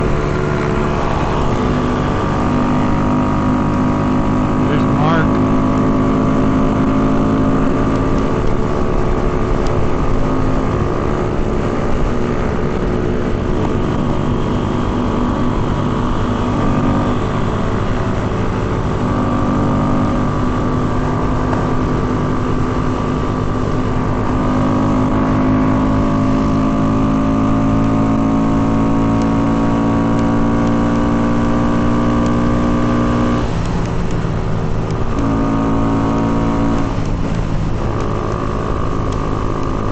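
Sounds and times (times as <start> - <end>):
small motorcycle engines running: 3.6 - 9.9.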